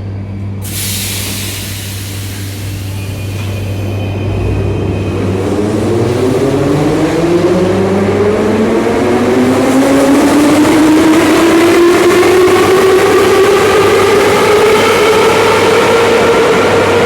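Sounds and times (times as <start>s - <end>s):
train running rumble: 0.0s - 17.0s
train traction motors whining: 0.6s - 9.4s.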